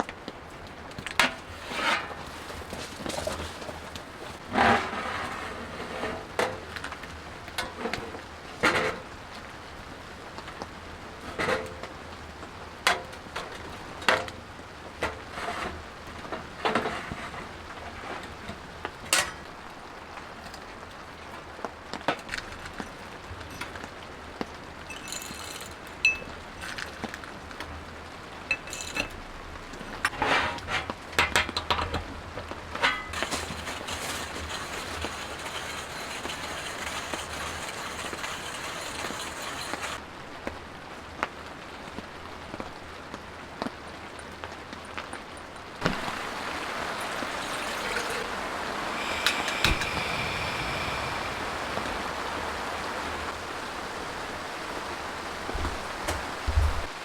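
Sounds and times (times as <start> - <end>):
rain hissing: 13.3 - 30.1, 32.8 - 44.0, 45.7 - 57.0
objects knocking and clinking: 24.9 - 27.1, 28.5 - 29.2, 44.2 - 48.3.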